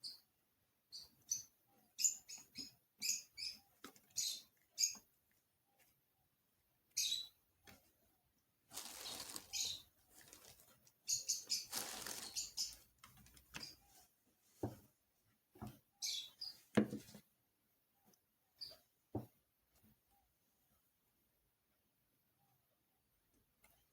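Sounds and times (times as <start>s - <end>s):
rustling and scraping: 8.7s - 15.0s.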